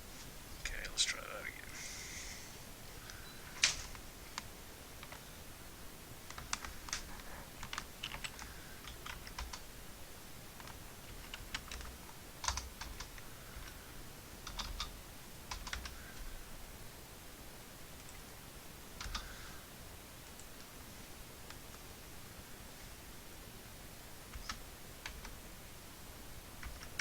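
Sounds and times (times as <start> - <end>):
typing on computer keyboard: 3.6 - 5.2, 6.2 - 9.7, 10.6 - 13.8, 14.4 - 16.0, 19.0 - 19.3, 24.3 - 25.4, 26.6 - 27.0.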